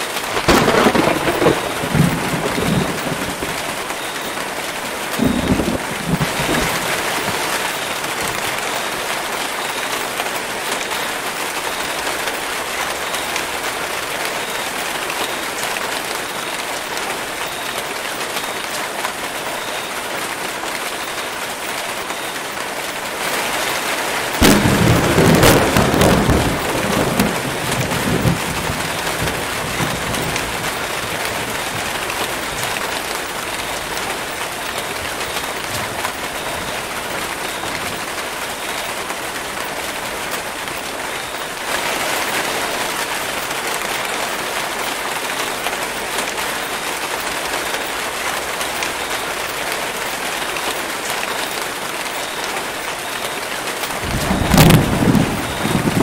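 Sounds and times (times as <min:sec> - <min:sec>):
heavy rain on foliage: 0:00.0 - 0:56.0
thunder clap and rumble: 0:00.3 - 0:08.4, 0:24.4 - 0:38.8, 0:53.9 - 0:56.0.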